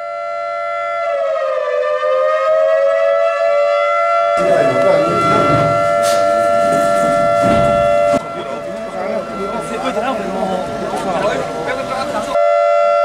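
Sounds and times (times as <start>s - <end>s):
voices outdoors: 4.4s - 12.4s.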